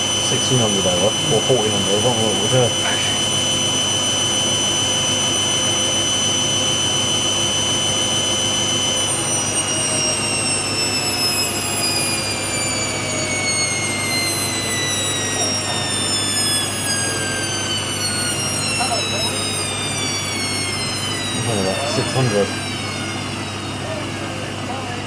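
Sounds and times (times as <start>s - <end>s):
washing machine motor whining: 0.0s - 25.0s.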